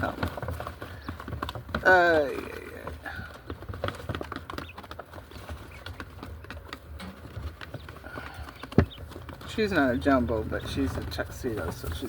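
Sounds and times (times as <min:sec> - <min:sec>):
clicks and taps in pigeon cage: 0:00.0 - 0:12.0.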